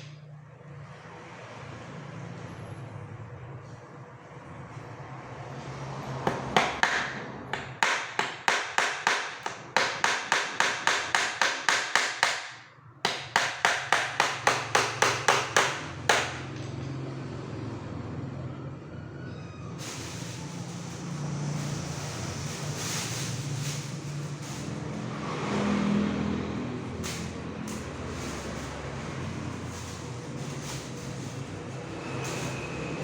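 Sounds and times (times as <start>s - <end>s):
nails hammered into wooden crate: 6.3s - 16.5s.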